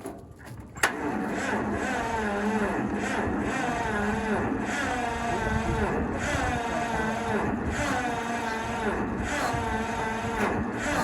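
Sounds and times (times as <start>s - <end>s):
electric starter cranking engine: 0.8s - 11.0s.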